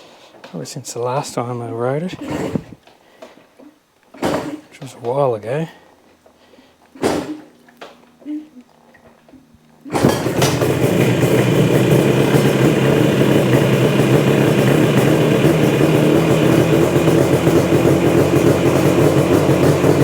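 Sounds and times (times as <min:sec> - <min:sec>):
two-stroke engine running: 0:09.9 - 0:20.0.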